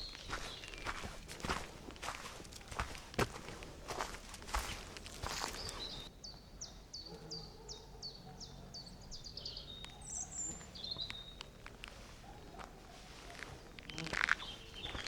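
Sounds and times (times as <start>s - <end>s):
footstep crunching on path: 0.0s - 6.1s, 10.6s - 15.0s
songbird singing: 0.0s - 15.0s.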